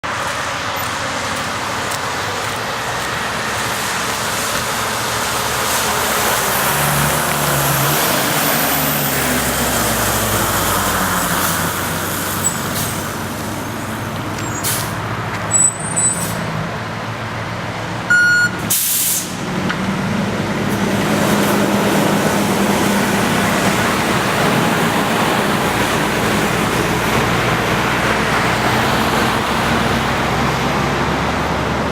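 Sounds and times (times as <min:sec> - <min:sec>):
fire engine diesel running: 0:00.0 - 0:31.9
air brakes hissing: 0:12.3 - 0:13.2, 0:14.4 - 0:16.5, 0:18.5 - 0:19.4.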